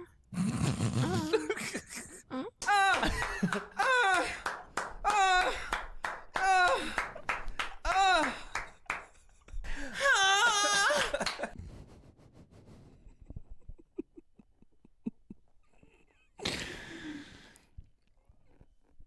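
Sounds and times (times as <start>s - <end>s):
men moaning: 2.4s - 7.2s, 7.9s - 8.7s.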